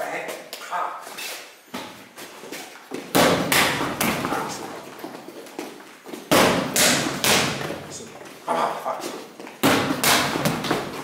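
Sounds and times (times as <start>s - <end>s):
strikes thudding on training dummy: 3.1s - 4.6s, 6.3s - 7.8s, 9.6s - 11.0s.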